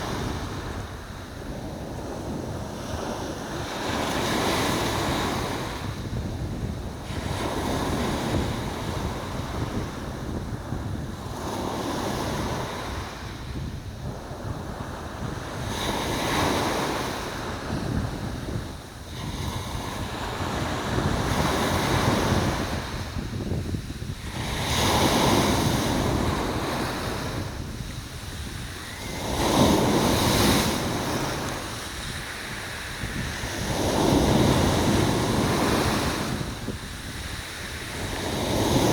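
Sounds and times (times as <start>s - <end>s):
low rumble of surf: 0.0s - 38.9s
sea waves washing: 15.6s - 38.9s.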